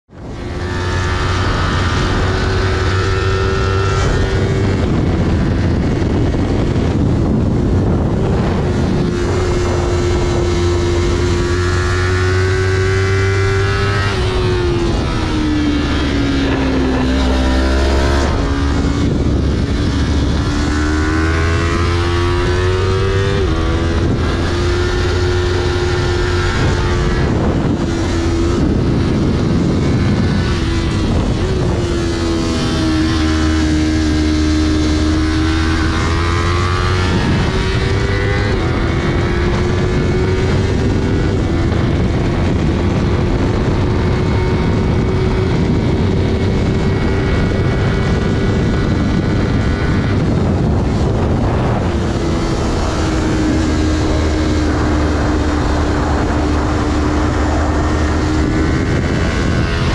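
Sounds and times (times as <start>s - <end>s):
heavy wind rush: 0.1s - 59.9s
motorcycle engine at high revs: 0.1s - 59.9s.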